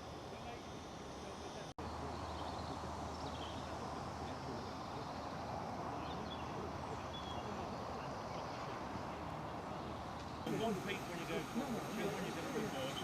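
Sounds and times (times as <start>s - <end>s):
steady low hum: 0.0s - 13.0s
faint bird chirps: 1.8s - 10.5s.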